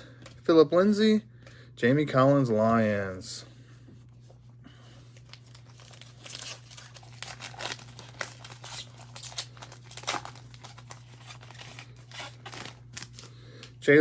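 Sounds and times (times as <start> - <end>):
low steady hum: 0.0 - 14.0
foil wrapper crinkling and tearing: 5.1 - 13.8.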